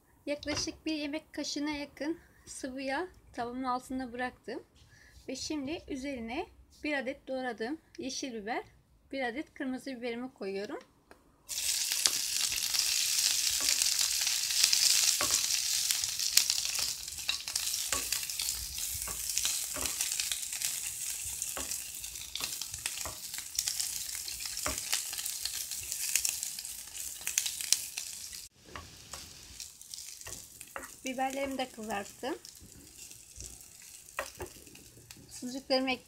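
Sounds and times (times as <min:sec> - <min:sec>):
wooden spatula scraping a pan: 0:11.5 - 0:27.9, 0:28.6 - 0:35.5
peppers sizzling in hot oil: 0:11.5 - 0:36.0.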